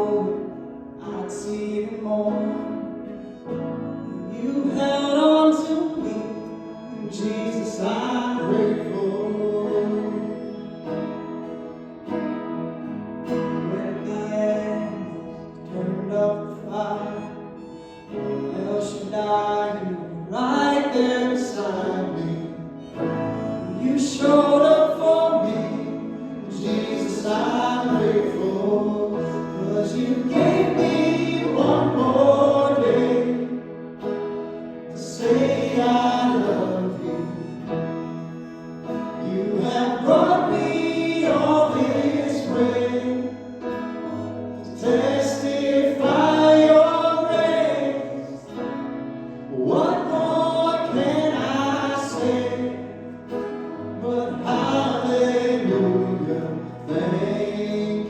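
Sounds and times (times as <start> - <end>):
voices singing together: 19.4 - 58.0.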